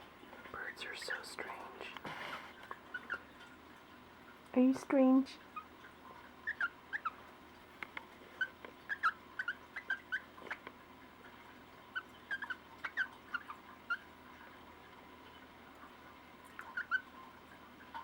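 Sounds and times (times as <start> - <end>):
cockatiel chirping: 6.4 - 7.2, 8.4 - 10.3.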